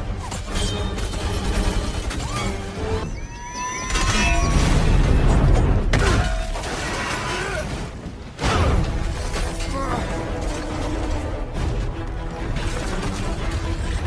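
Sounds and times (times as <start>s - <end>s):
film music score: 0.0s - 14.0s.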